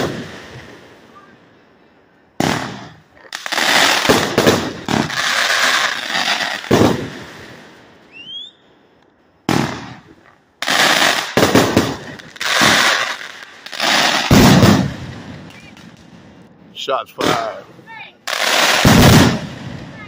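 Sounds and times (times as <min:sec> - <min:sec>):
crackling firework bursts: 0:00.0 - 0:01.4, 0:02.4 - 0:08.6, 0:09.4 - 0:16.5, 0:17.2 - 0:20.0
firework bursts: 0:00.0 - 0:01.4, 0:02.4 - 0:08.8, 0:09.4 - 0:20.0
rising firework whistle: 0:08.0 - 0:08.9, 0:11.8 - 0:16.0.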